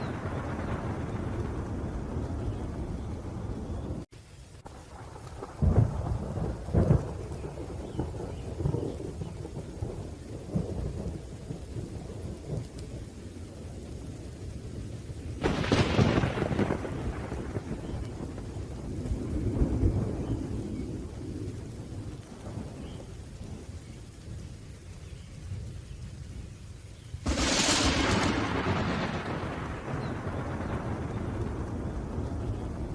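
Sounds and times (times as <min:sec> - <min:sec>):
sharp thunderclap: 0:00.0 - 0:04.1, 0:04.7 - 0:12.9, 0:15.4 - 0:23.7, 0:27.2 - 0:32.9
rolling thunder: 0:00.0 - 0:26.6, 0:27.2 - 0:32.9
steady rain: 0:00.0 - 0:32.9.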